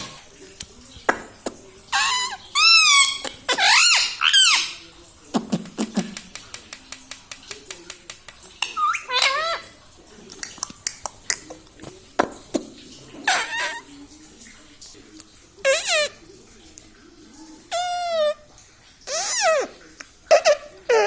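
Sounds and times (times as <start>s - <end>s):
parakeet warbling calls: 1.9s - 4.8s.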